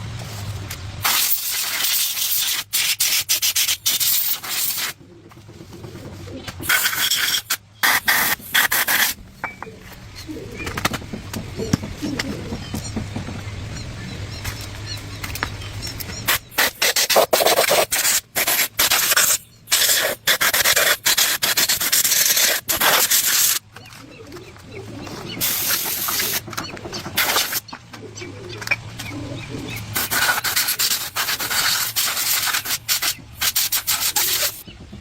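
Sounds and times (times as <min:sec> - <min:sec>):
abrasive scraping on rusty metal: 0:05.9 - 0:13.0, 0:14.4 - 0:23.9, 0:28.6 - 0:34.6.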